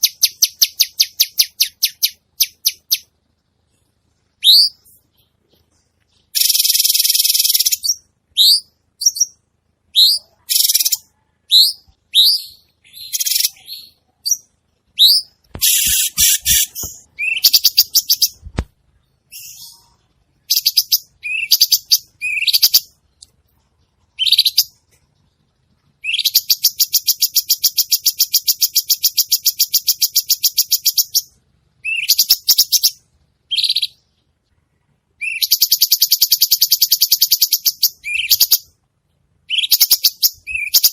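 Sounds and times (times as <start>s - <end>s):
bird buzzy rattling trills: 15.1s - 18.5s.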